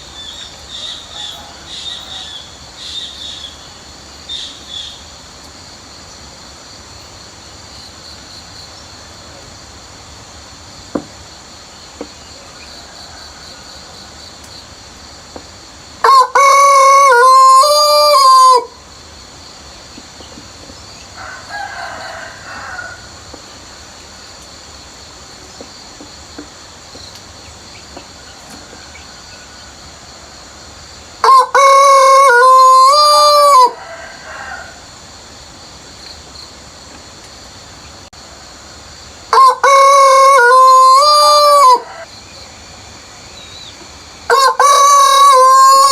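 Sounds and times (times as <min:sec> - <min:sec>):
rooster crowing: 0:00.2 - 0:02.8, 0:12.5 - 0:14.2, 0:16.0 - 0:18.8, 0:21.2 - 0:23.4, 0:31.2 - 0:35.0, 0:39.3 - 0:42.2, 0:44.3 - 0:45.9.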